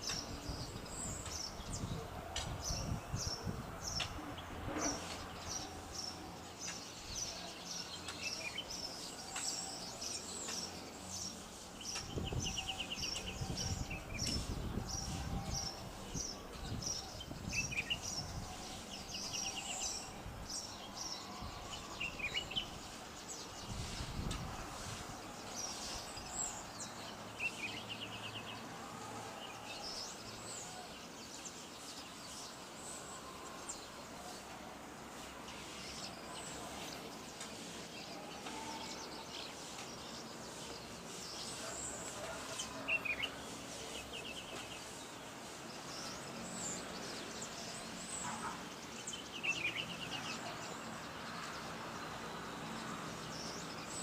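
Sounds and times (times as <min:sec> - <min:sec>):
birds chirping and calling: 0:00.0 - 0:28.7
outdoor background noise: 0:00.0 - 0:54.0.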